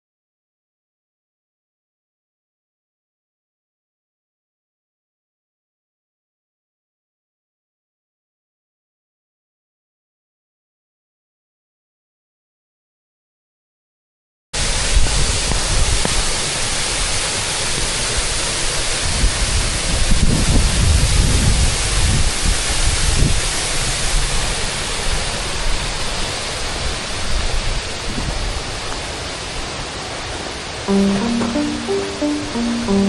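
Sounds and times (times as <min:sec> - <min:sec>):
rushing water: 0:14.6 - 0:33.0
wind buffeting microphone: 0:19.0 - 0:23.4.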